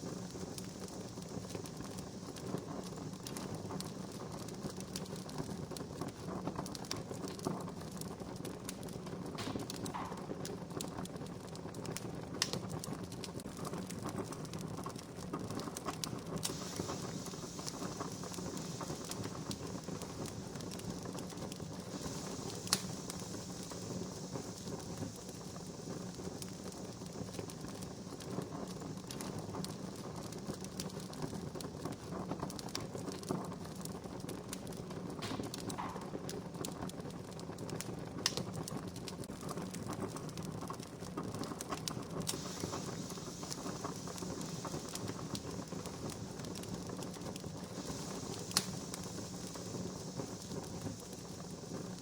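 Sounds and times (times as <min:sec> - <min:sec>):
sharp fire pops: 0:00.0 - 0:52.0
wood fire crackling: 0:00.0 - 0:52.0.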